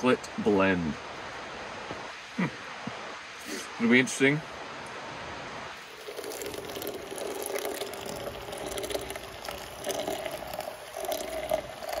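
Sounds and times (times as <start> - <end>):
liquid pouring into a vessel: 5.8 - 12.0.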